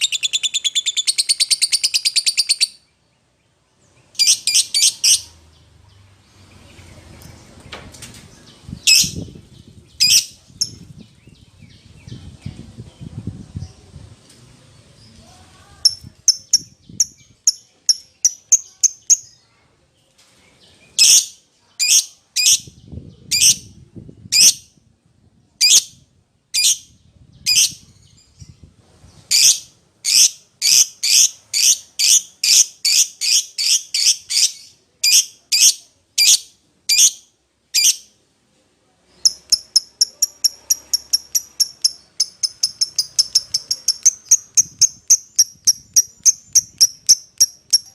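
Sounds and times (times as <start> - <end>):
lovebird chirping: 0.0 - 7.5, 8.4 - 12.3, 15.8 - 19.5, 29.2 - 38.2, 39.1 - 47.9.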